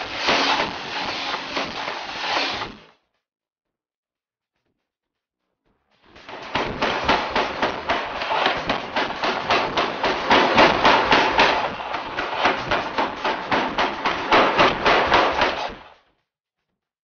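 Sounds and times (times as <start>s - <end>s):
pneumatic hammer pounding metal: 0.0s - 2.8s, 6.2s - 16.0s.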